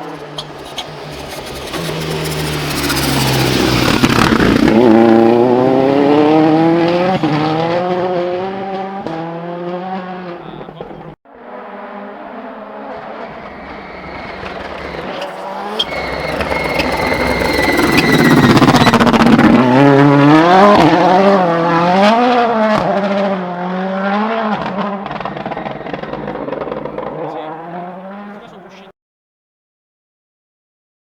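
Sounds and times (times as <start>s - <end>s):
rally car engine passing: 0.0s - 28.9s
thin high whistle: 13.6s - 19.7s.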